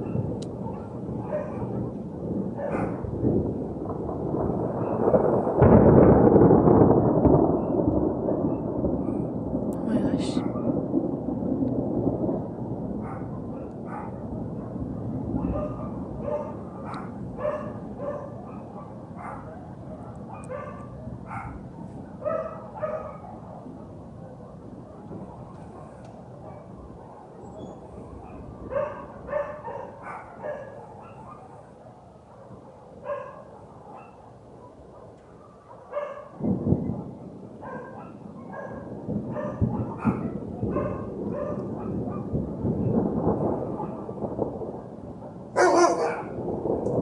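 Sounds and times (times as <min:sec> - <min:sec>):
dog barking: 0:00.0 - 0:01.9, 0:02.6 - 0:03.0, 0:04.8 - 0:05.0, 0:10.4 - 0:10.8, 0:13.0 - 0:27.4, 0:28.2 - 0:42.4, 0:43.6 - 0:44.2, 0:45.6 - 0:46.4
rolling thunder: 0:00.0 - 0:47.0.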